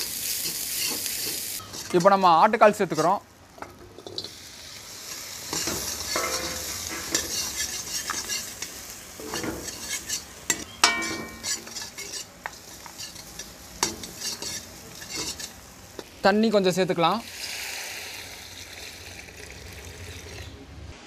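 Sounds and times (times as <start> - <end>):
ladle scraping and clicking on wok: 0.0 - 2.2, 2.9 - 4.4, 5.1 - 16.1
meat sizzling in hot oil: 0.0 - 20.3
ringing metal clang: 10.5 - 11.5.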